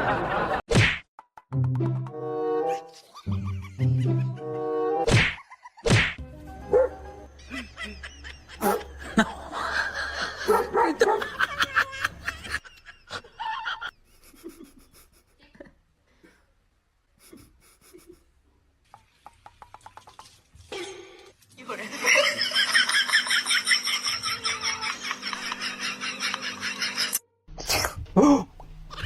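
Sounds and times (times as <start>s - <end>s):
people laughing: 0.0s - 0.6s, 2.9s - 5.9s, 7.4s - 15.7s, 21.8s - 27.2s.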